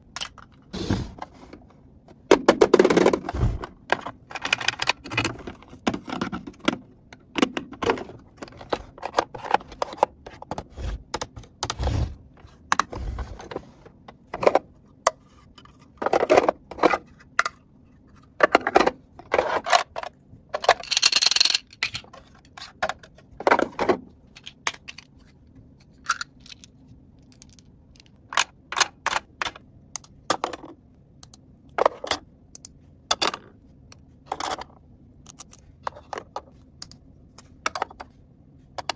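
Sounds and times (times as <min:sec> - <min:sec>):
plastic toy pieces clicking: 0:20.6 - 0:22.1.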